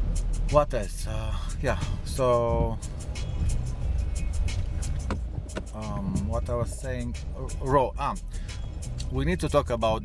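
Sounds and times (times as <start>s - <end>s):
engine and tyre rumble: 0.0s - 10.0s
light ticks: 8.8s - 9.2s.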